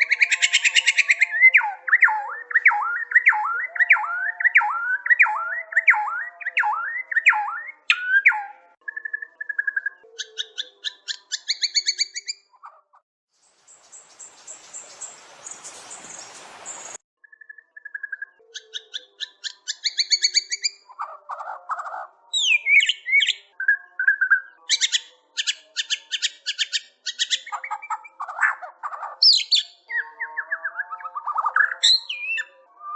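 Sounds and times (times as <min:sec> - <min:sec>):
bird singing: 0:00.0 - 0:12.5, 0:13.4 - 0:32.9
hiss-like noise: 0:13.4 - 0:17.0.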